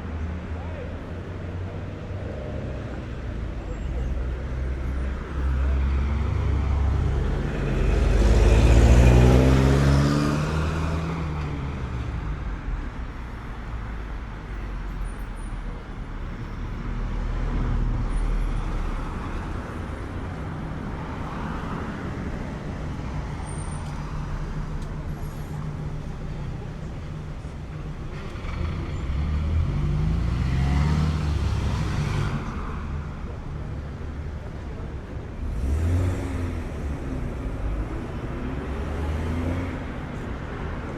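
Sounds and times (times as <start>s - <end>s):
cars passing: 0.0s - 40.9s
road traffic: 0.0s - 40.9s
vehicle accelerating past: 7.3s - 11.4s, 28.4s - 32.6s.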